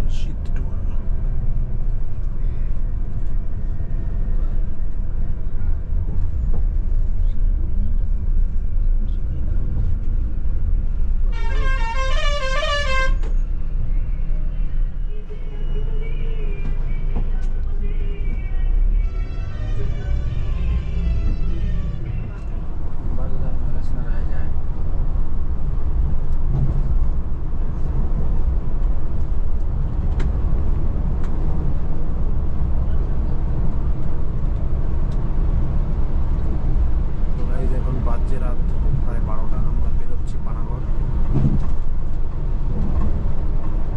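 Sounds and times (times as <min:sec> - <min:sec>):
bus running: 0:00.0 - 0:43.9
coach engine and road rumble: 0:00.0 - 0:43.9
musical vehicle horn: 0:11.3 - 0:13.3, 0:19.0 - 0:22.2.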